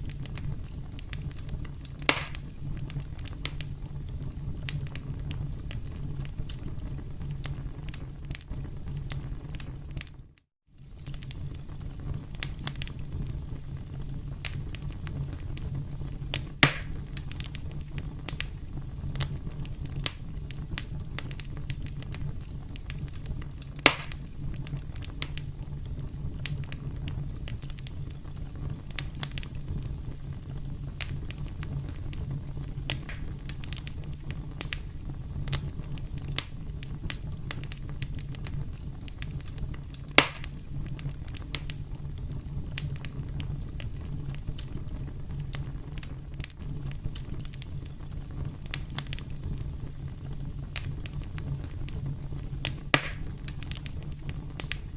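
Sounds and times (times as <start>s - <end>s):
burning wood rumble: 0.0s - 54.9s
fire snaps and pops: 0.0s - 54.9s.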